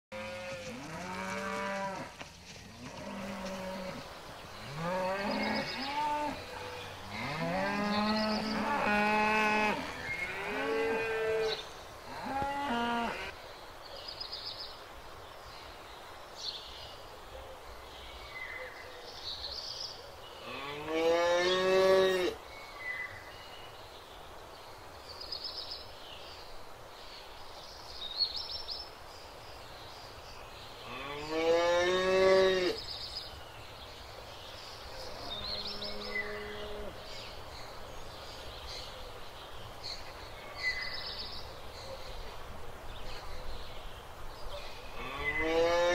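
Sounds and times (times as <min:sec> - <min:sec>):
cows mooing: 0:04.7 - 0:11.5.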